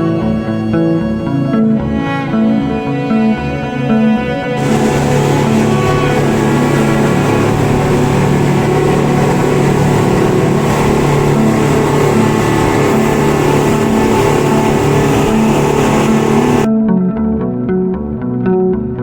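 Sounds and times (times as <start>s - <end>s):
motorboat engine running: 4.6s - 16.7s
rushing water: 4.6s - 16.7s
rushing wind: 4.6s - 16.7s.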